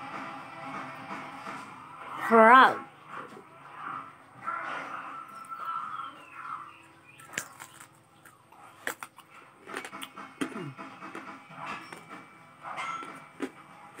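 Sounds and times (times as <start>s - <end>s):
chewing fried food: 5.2s - 14.0s
sharp crunches: 7.2s - 11.3s.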